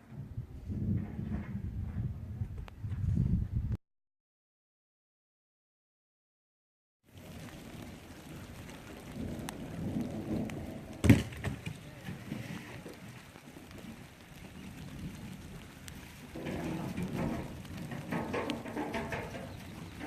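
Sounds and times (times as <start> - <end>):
raindrop ticks: 7.1 - 20.0
thunder rumbling: 7.1 - 20.0
sharp thunder crack: 9.1 - 12.6.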